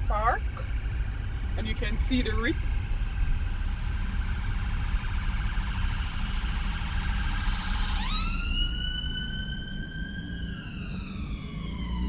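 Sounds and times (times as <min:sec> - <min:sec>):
low traffic rumble: 0:00.0 - 0:12.0
emergency vehicle siren: 0:04.0 - 0:12.0.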